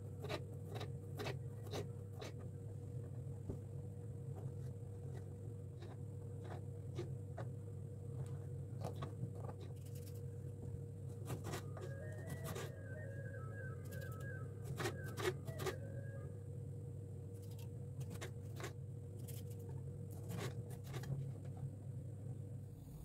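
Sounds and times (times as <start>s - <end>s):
steady low hum: 0.0s - 23.0s
faint wavering tone: 11.4s - 16.8s.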